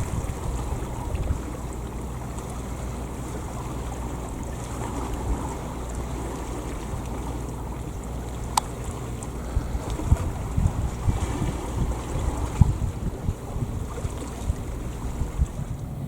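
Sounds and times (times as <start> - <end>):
wind noise on microphone: 0.0 - 1.7, 8.0 - 16.0
boat engine drone: 0.0 - 16.0
water wash: 0.0 - 16.0.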